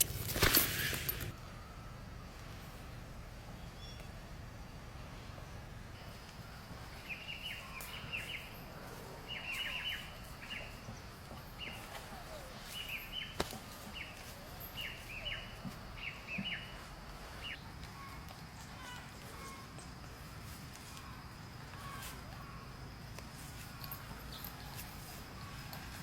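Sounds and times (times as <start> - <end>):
small birds chirping: 5.9 - 26.0.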